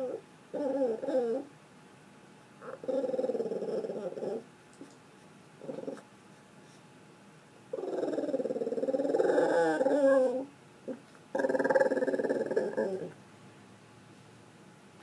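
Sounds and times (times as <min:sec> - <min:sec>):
dog grumbling and moaning: 0:00.0 - 0:01.5, 0:02.6 - 0:04.5, 0:05.6 - 0:06.1, 0:07.7 - 0:13.2.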